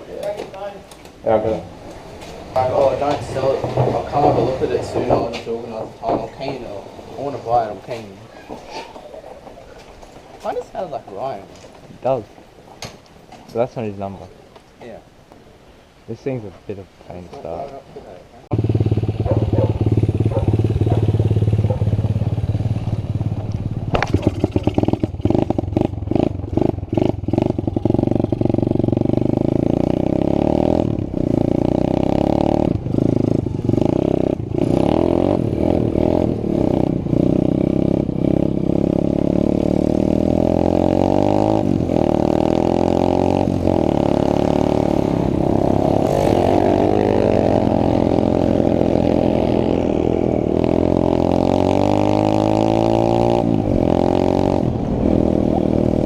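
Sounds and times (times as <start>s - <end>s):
pit bike engine revving: 2.2s - 8.1s, 18.5s - 56.0s.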